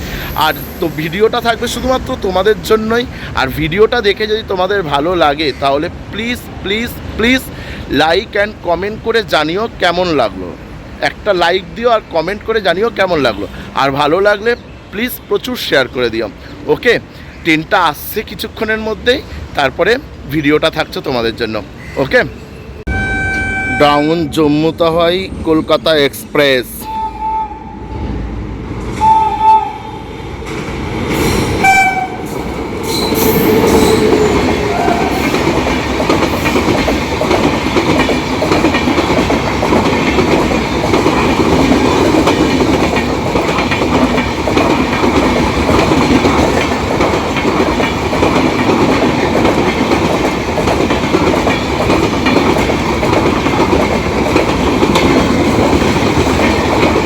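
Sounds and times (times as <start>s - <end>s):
train coaches rushing by: 0.0s - 57.0s
train horn blasts: 22.9s - 24.1s, 26.9s - 28.1s, 29.0s - 30.1s, 31.6s - 32.3s
wheels clattering over rail joints: 32.4s - 57.0s.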